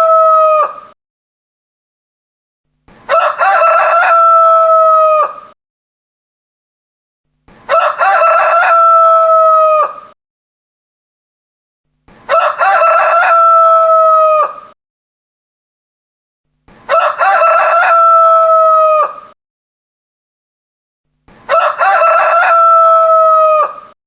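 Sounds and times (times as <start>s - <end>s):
rooster crowing: 0.0s - 0.9s, 3.1s - 5.6s, 7.7s - 10.2s, 12.3s - 14.8s, 16.9s - 19.4s, 21.5s - 24.0s.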